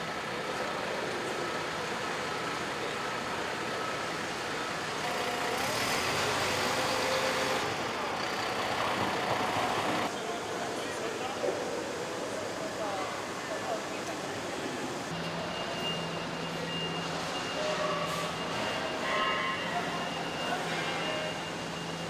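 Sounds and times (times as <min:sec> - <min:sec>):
machinery hum: 0:01.5 - 0:10.1.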